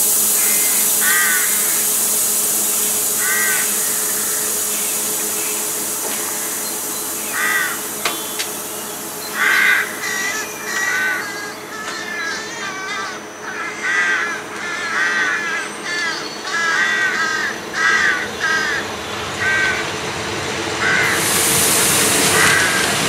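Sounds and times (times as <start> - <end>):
loud hiss: 0.0 - 12.3, 17.0 - 23.0
train running past: 0.0 - 23.0
bird calling: 0.4 - 2.0, 2.8 - 20.0, 20.8 - 23.0.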